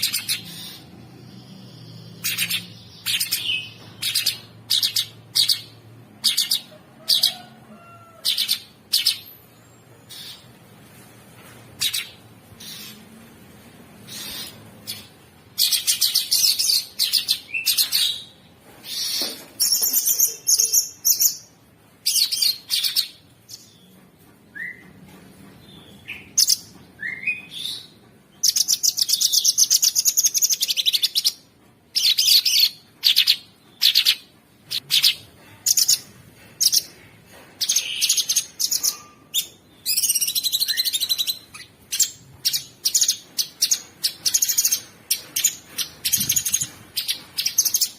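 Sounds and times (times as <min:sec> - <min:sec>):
bird singing harsh rattling trills: 0:00.0 - 0:07.3, 0:11.8 - 0:13.1, 0:14.1 - 0:21.5.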